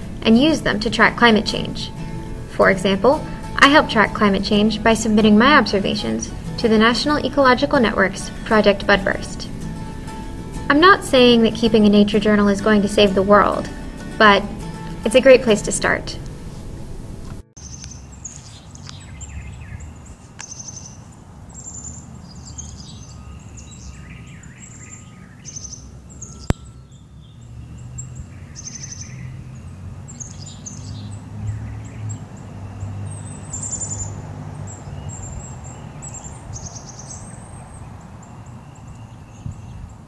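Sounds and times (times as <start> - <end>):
low outdoor rumble: 0.0 - 17.4
small birds chirping: 17.6 - 40.0.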